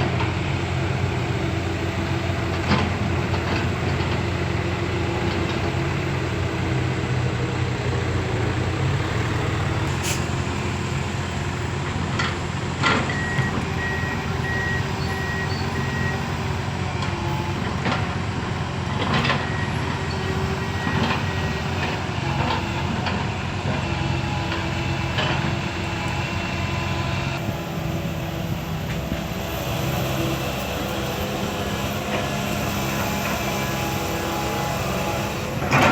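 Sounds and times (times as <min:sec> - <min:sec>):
excavator running: 0:00.0 - 0:35.9
reversing beeper beeps: 0:13.1 - 0:16.7, 0:19.2 - 0:22.5.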